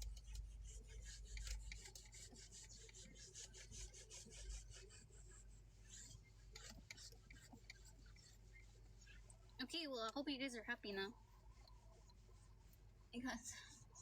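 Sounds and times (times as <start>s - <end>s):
wiping car surface: 0.0s - 10.1s.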